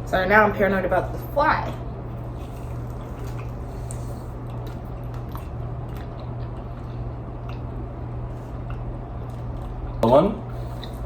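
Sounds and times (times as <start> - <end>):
person chewing: 2.2 - 10.0.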